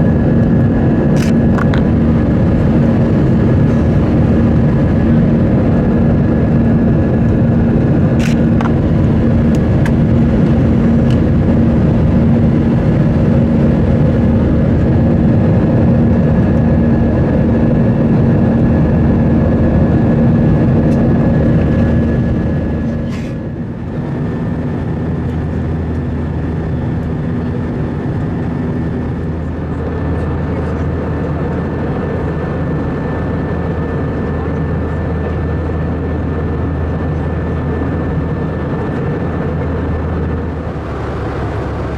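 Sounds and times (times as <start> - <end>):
low hum: 0.0 - 18.3, 19.0 - 29.5, 40.0 - 41.9
jet engine cabin noise: 0.0 - 41.9.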